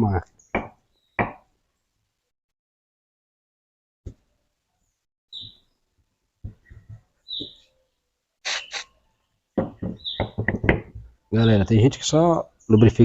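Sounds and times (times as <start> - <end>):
bird chirping: 0.1 - 1.3, 4.8 - 5.9, 6.5 - 13.0
aerosol spray hissing: 8.5 - 8.8.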